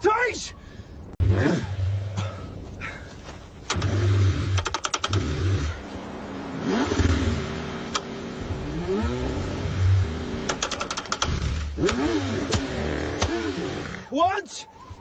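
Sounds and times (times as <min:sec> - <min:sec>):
car starter grinding: 0:03.7 - 0:05.8, 0:10.4 - 0:14.0
engine trying to catch: 0:03.7 - 0:05.8, 0:06.6 - 0:14.0.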